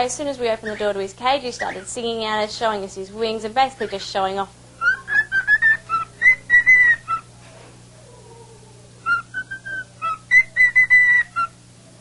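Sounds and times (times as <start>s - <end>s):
cockatiel whistling a tune: 4.8s - 7.3s, 9.0s - 11.6s.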